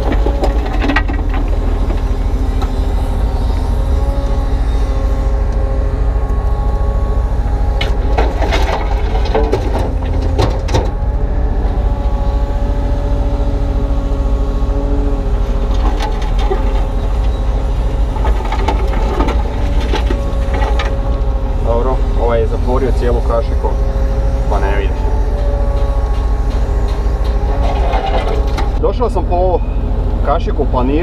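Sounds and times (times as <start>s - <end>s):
excavator diesel engine: 0.0s - 31.0s
bucket knocks and scrapes: 7.8s - 10.9s.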